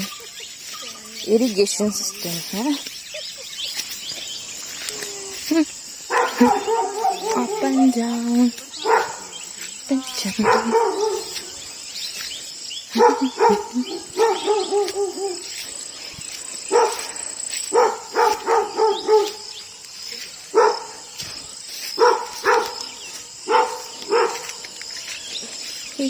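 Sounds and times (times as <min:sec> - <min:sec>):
dog barking and yelping: 0:06.1 - 0:09.5, 0:10.3 - 0:11.6, 0:12.9 - 0:15.7, 0:16.6 - 0:19.6, 0:20.5 - 0:21.1, 0:21.9 - 0:24.7.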